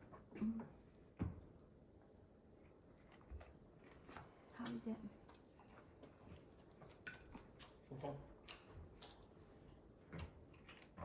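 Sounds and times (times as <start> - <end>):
clicks and smacks of eating: 2.6 - 11.0.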